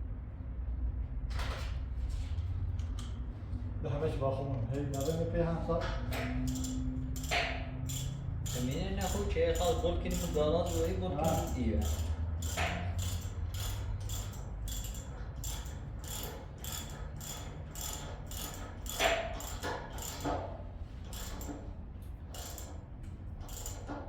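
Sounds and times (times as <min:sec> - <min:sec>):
metal mechanism clicking: 0:04.8 - 0:21.6, 0:22.3 - 0:24.0.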